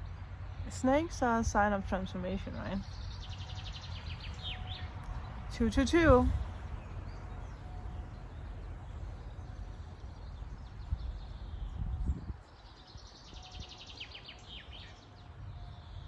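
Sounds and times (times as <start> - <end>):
songbirds singing: 0.0 - 16.0.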